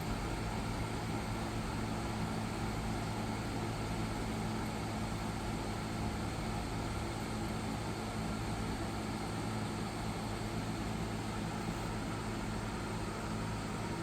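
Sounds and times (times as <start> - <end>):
air conditioner running: 0.0 - 14.0.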